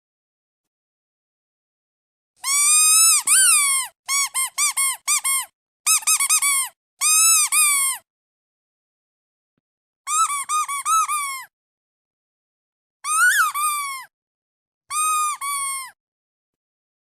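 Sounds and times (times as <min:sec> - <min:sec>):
squeaky duck toy squeaks: 0:02.4 - 0:08.0, 0:10.1 - 0:11.5, 0:13.0 - 0:14.1, 0:14.9 - 0:16.0.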